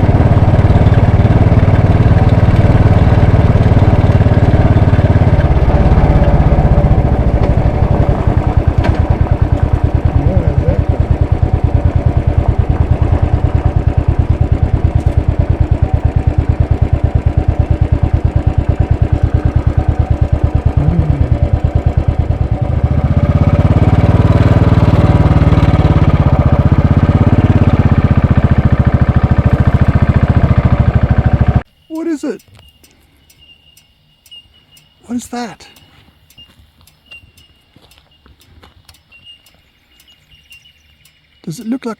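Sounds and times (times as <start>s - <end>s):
motorcycle engine running: 0.0s - 32.7s.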